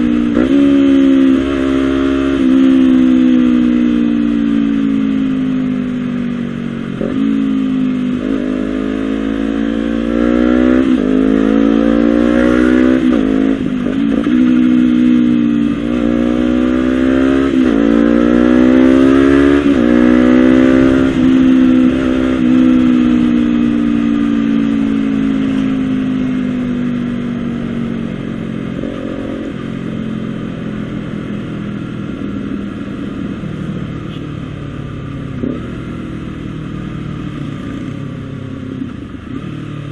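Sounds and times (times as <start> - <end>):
motorcycle engine shifting through gears: 0.0 - 39.9.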